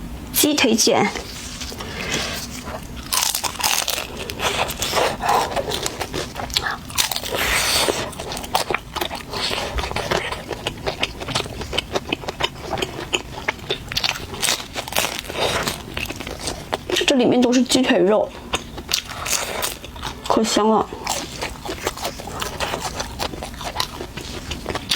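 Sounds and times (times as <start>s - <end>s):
crunchy chewing: 1.2s - 24.9s.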